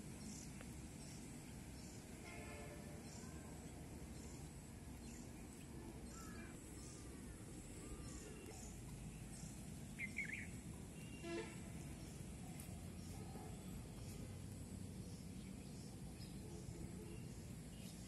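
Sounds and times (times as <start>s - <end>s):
faint outdoor background noise: 0.0s - 18.0s
bird calls: 5.0s - 14.2s.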